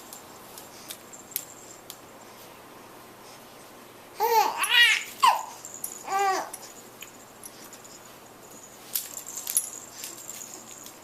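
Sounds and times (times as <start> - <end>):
baby cooing and squealing: 4.2 - 6.6.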